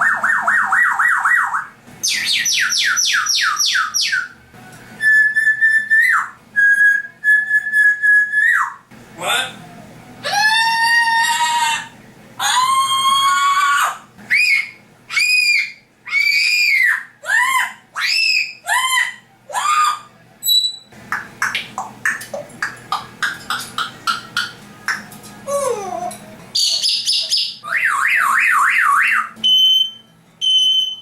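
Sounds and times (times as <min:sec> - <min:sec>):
parrot whistled screeches: 0:00.0 - 0:04.4, 0:05.0 - 0:08.8, 0:10.2 - 0:20.9, 0:26.6 - 0:31.0.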